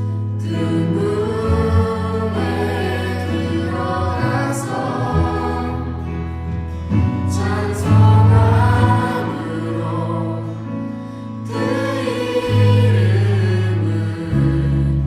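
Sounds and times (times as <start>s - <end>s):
singers performing worship song: 0.0s - 15.0s
sustained low bass notes: 0.0s - 15.0s.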